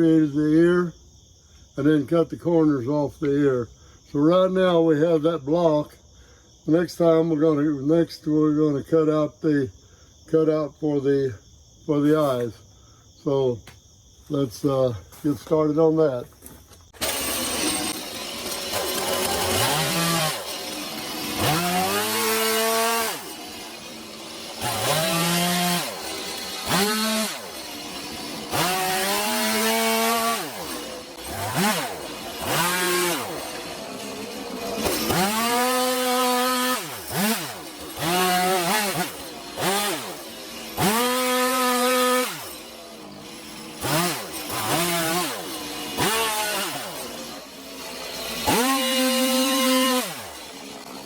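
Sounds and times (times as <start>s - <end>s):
chainsaw revving cutting wood: 16.9s - 51.0s.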